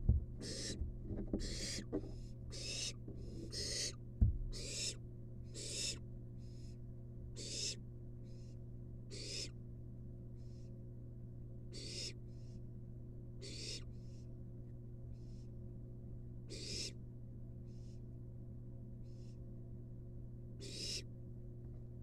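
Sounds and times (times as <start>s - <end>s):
low electrical hum: 0.0s - 22.0s
owl chick hissing begging calls: 0.4s - 0.8s, 1.4s - 6.8s, 7.4s - 9.6s, 11.7s - 12.6s, 13.4s - 14.2s, 16.5s - 17.0s, 17.7s - 18.0s, 20.6s - 21.1s
low knocks: 4.2s - 4.5s.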